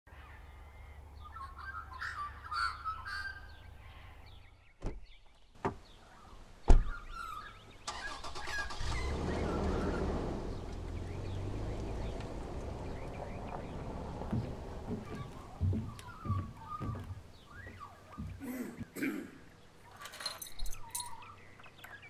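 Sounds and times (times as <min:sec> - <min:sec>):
birds chirping: 0:00.1 - 0:22.0
car engine starting and running: 0:07.8 - 0:15.7.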